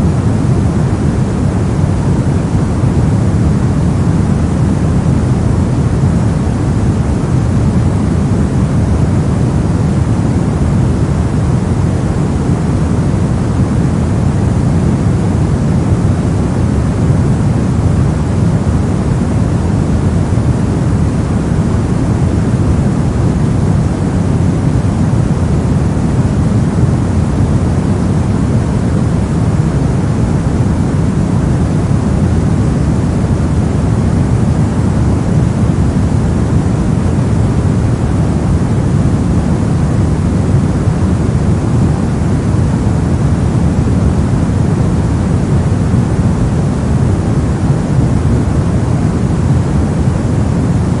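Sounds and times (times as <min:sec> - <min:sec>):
brown noise rumbling hiss: 0:00.0 - 0:51.0.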